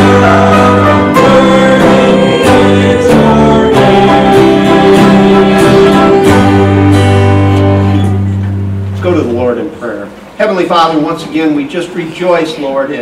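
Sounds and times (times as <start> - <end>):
strummed acoustic guitar: 0.0 - 9.5
sustained chords: 0.0 - 9.9.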